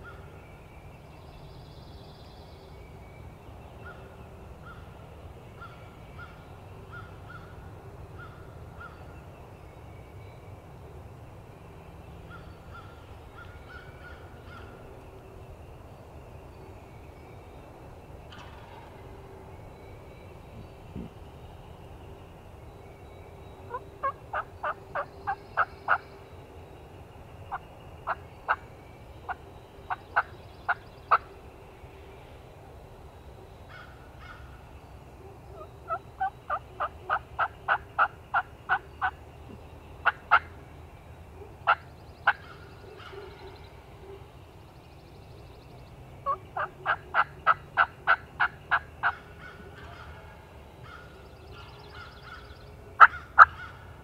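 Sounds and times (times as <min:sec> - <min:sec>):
turkey yelping: 0:23.7 - 0:26.0, 0:35.5 - 0:39.1, 0:46.2 - 0:50.2, 0:53.0 - 0:53.8.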